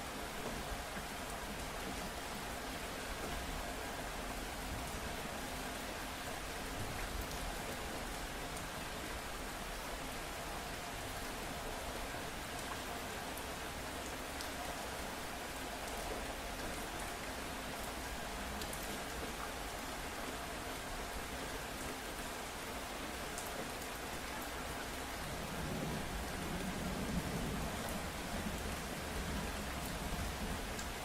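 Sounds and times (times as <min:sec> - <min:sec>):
steady rain falling: 0:00.0 - 0:31.0
low rumble of thunder: 0:25.4 - 0:30.8.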